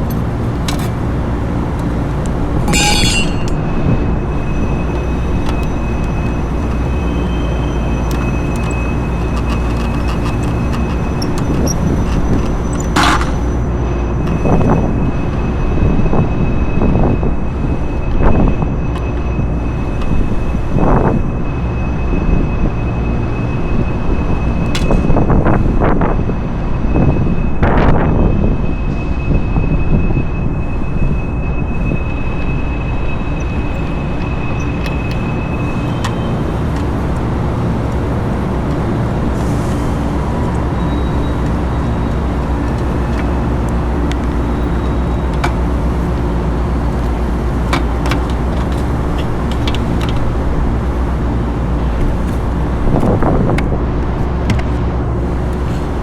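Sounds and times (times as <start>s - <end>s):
louder clatter: 2.6s - 3.8s.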